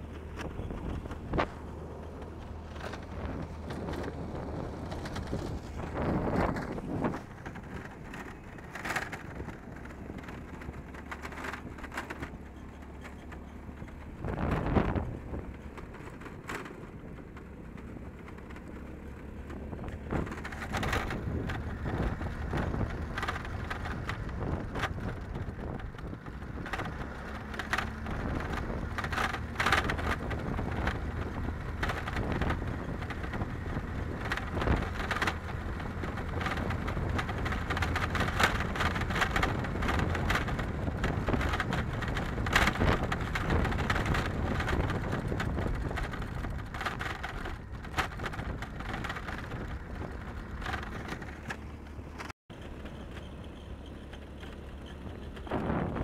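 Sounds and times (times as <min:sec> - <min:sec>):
low rumble: 0:00.0 - 0:12.8.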